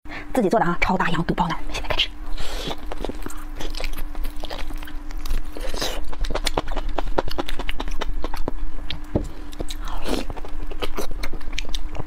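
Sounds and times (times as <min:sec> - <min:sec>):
faint steady hum: 0:00.1 - 0:12.0
biting and chewing: 0:02.5 - 0:12.0.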